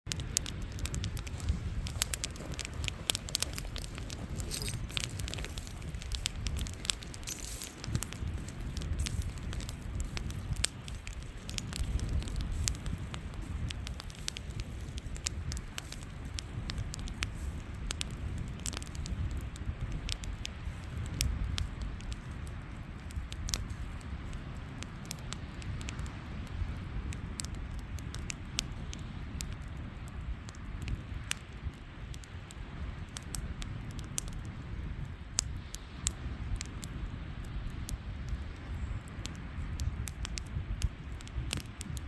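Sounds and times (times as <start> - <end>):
low rumble: 0.1 - 20.2
campfire crackling and popping: 0.1 - 42.0.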